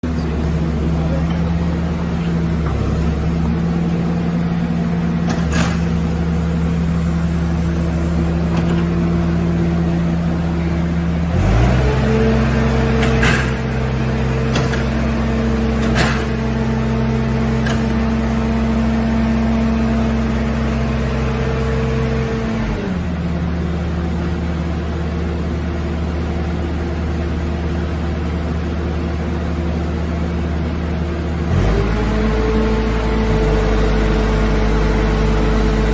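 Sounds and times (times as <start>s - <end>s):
skid-steer loader engine running: 0.0s - 35.9s.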